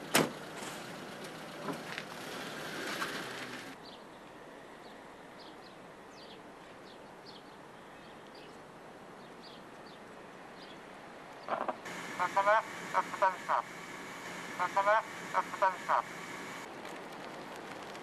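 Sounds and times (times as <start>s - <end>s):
car noise: 0.0s - 3.8s, 11.5s - 16.8s
low outdoor hum: 11.4s - 18.0s.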